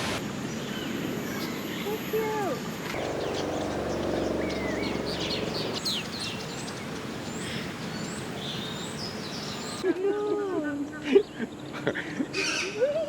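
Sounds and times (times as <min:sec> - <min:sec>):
birds chirping: 0:02.9 - 0:09.8
low steady hum: 0:03.0 - 0:06.3.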